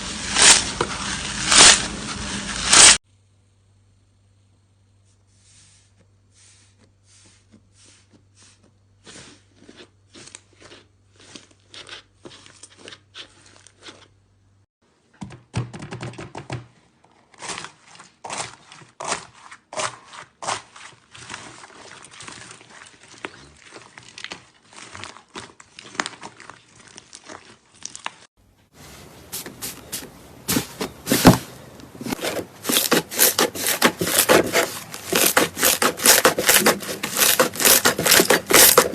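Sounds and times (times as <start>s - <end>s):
slime crackling and popping: 23.3s - 28.3s.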